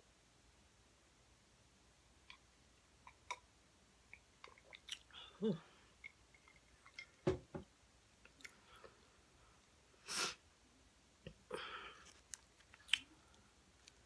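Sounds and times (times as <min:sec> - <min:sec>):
person chewing: 0:04.5 - 0:05.3, 0:11.9 - 0:14.0
breathy sniff: 0:10.0 - 0:10.4.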